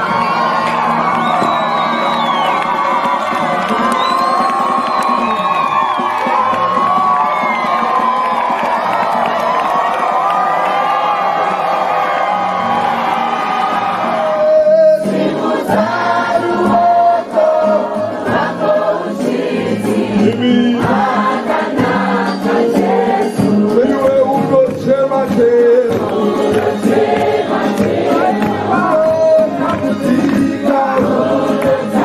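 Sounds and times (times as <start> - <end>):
choir singing a worship song: 15.0 - 24.0, 25.9 - 32.0.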